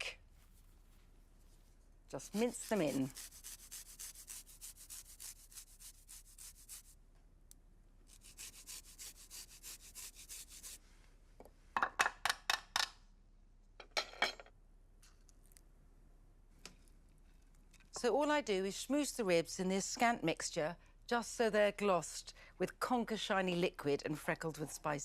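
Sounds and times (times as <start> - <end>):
garlic rasping on a grater: 2.2 - 6.9, 8.1 - 10.8.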